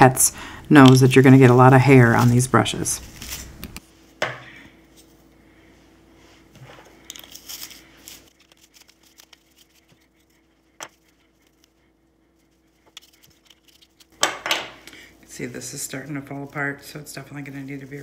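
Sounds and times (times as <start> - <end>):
hair rustling and scraping: 0.8 - 4.2, 6.1 - 14.2, 15.4 - 18.0.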